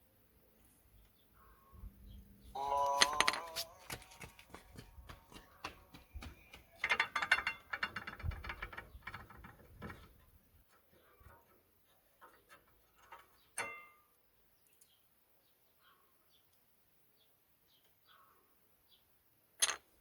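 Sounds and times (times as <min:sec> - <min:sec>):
metal tools clinking: 0:06.8 - 0:08.7.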